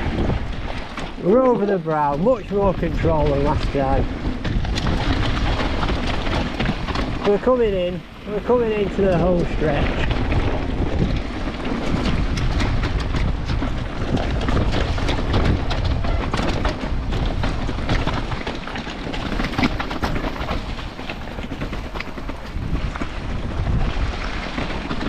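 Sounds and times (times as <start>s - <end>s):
bike rattling and knocking: 0.0s - 25.0s
wind buffeting microphone: 0.0s - 25.0s
tyres rumbling: 5.2s - 10.5s.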